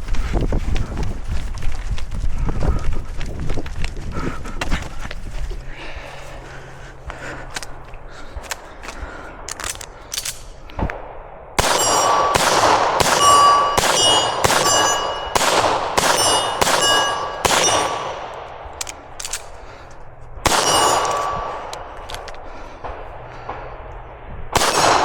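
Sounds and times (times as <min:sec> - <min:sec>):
gunshots: 0:11.0 - 0:18.6, 0:20.4 - 0:21.8, 0:24.5 - 0:25.0
steel target ringing ping: 0:11.6 - 0:18.2, 0:20.5 - 0:21.6.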